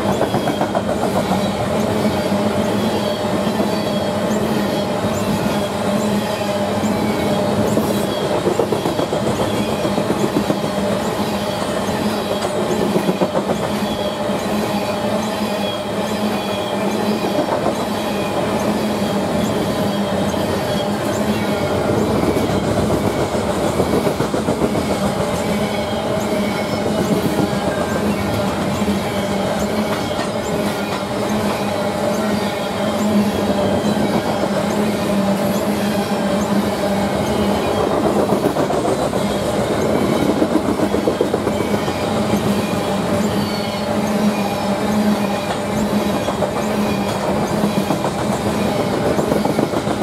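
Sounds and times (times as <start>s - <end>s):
high wheel squeals: 0.0s - 23.8s, 24.9s - 50.0s
train wheels clattering on rail: 0.0s - 50.0s.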